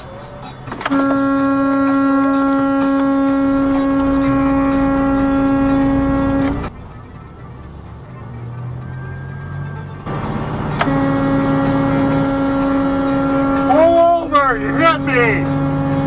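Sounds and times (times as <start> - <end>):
vehicle horn blast: 0.8 - 6.7, 9.4 - 16.0.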